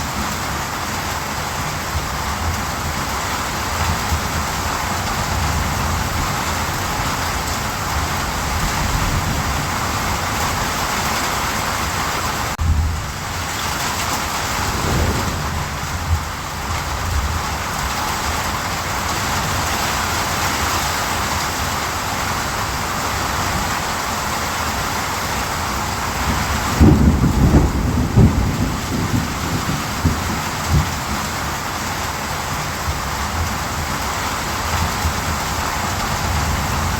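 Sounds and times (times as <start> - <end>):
heavy rain: 0.0 - 36.9
low rumbling: 14.2 - 17.4.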